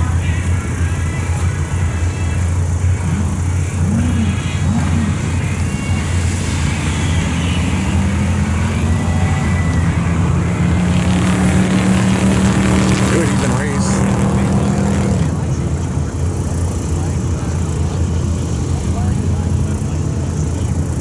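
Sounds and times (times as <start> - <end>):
engine accelerating: 0.0 - 21.0
low engine rumble: 0.0 - 21.0
engine revving in blips: 1.9 - 17.2.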